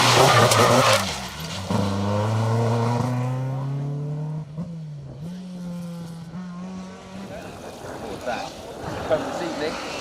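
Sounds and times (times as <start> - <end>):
rally car engine revving: 0.0 - 7.5.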